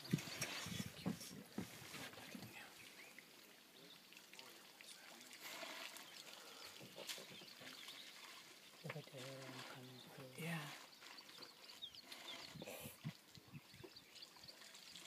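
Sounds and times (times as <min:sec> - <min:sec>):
small bird calls: 0:04.8 - 0:15.0.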